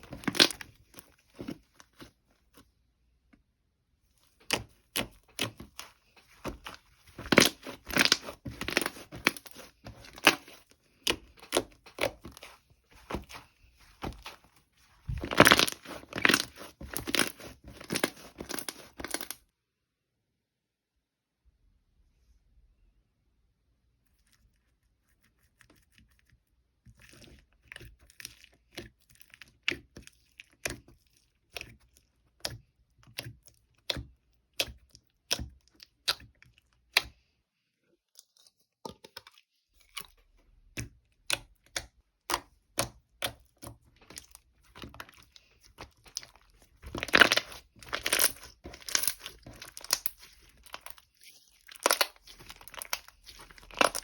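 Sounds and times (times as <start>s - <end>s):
crunchy food chewing: 43.6s - 54.0s.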